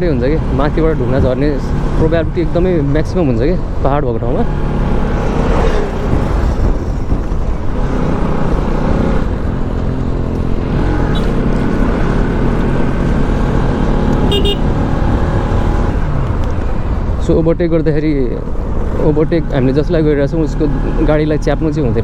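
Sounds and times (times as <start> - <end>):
wind rumble on microphone: 0.0 - 13.0
motorcycle engine running: 5.8 - 17.0.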